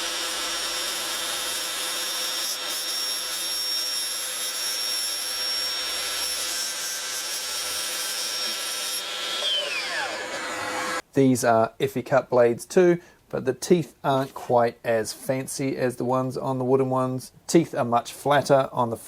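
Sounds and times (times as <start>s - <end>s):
electric saw whining: 0.0s - 11.0s.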